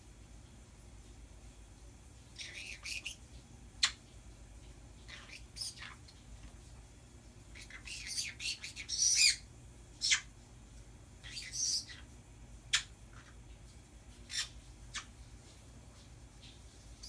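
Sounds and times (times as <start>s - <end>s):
birds chirping and squawking: 2.4s - 3.2s, 5.0s - 6.2s, 7.5s - 10.3s, 11.2s - 13.4s, 14.2s - 15.2s.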